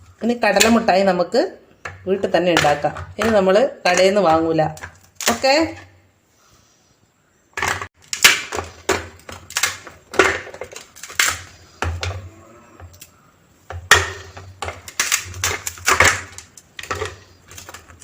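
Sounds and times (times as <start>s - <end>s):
hard candy pieces clicking and clattering: 8.0s - 12.2s, 13.7s - 18.0s.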